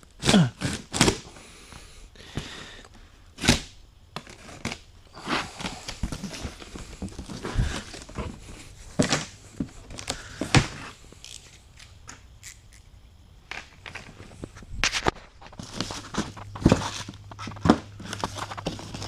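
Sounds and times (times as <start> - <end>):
cardboard rustling and tearing: 3.4 - 11.5, 14.8 - 19.0
cardboard thuds: 5.4 - 10.9.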